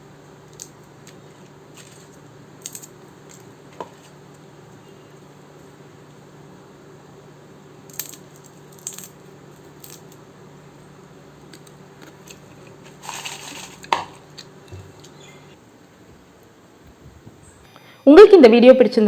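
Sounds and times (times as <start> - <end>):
low steady hum: 0.0 - 19.0
crisp chips clicking and rattling: 0.5 - 3.5, 7.9 - 10.2, 11.5 - 15.1.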